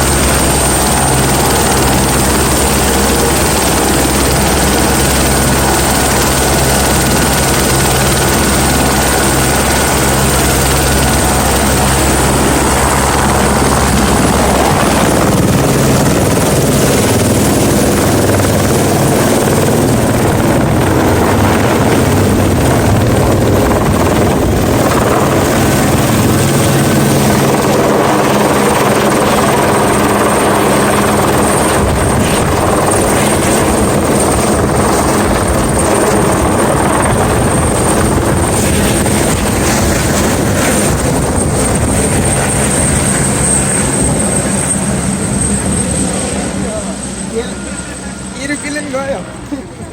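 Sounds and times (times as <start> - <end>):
helicopter rotor chop and whine: 0.0 - 49.9.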